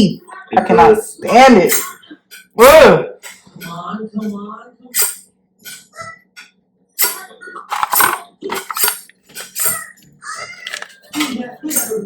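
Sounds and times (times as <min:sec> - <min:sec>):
knife scraping through sharpener: 0:07.0 - 0:10.0.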